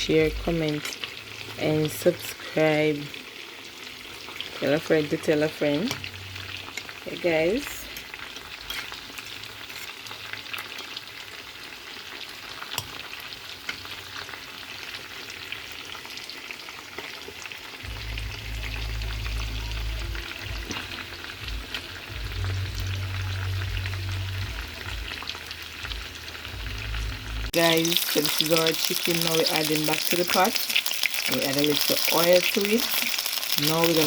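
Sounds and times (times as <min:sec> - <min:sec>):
food sizzling in hot oil: 0:00.0 - 0:34.0
low hum: 0:17.9 - 0:27.5.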